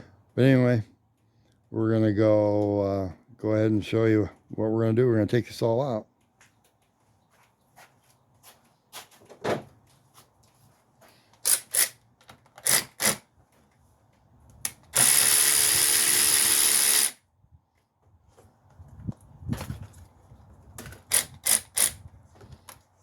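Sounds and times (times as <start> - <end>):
tools and parts clicking: 11.4 - 13.2
power drill running: 14.9 - 17.2.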